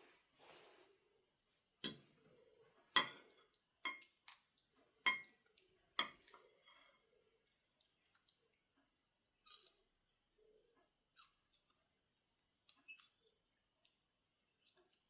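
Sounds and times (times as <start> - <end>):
dishes and glassware clinking: 1.8 - 2.3, 3.0 - 3.3, 5.1 - 5.3.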